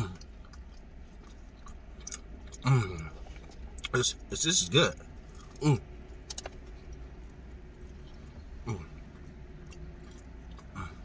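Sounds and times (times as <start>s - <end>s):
man chewing crunchy food: 0.0s - 4.3s, 4.9s - 11.0s
low steady rumble: 0.0s - 11.0s
man humming mm: 10.7s - 11.0s.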